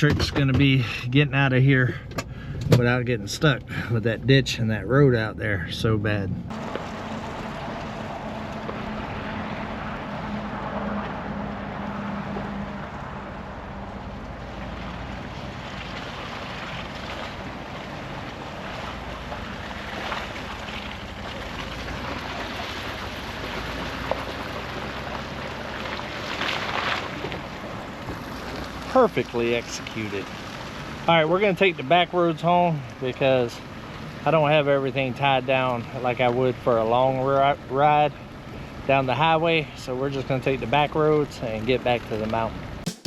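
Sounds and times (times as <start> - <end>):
vehicle engine running: 0.0 - 26.3
road and wind noise: 0.0 - 42.9.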